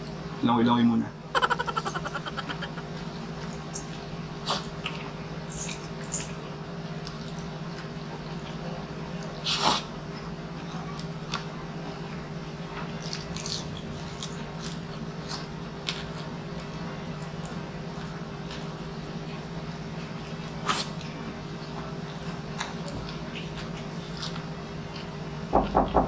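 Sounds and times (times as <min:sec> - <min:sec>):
man chewing: 0:01.4 - 0:05.0, 0:22.1 - 0:25.2.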